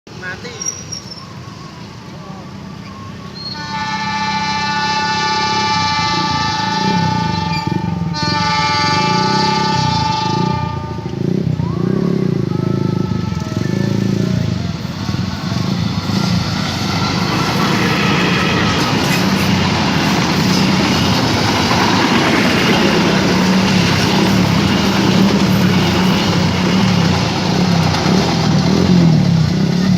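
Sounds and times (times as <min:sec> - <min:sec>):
locomotive engine hum: 0:00.7 - 0:29.9
faint train horn: 0:03.4 - 0:19.4
train wheels rumbling and clattering: 0:13.4 - 0:29.9.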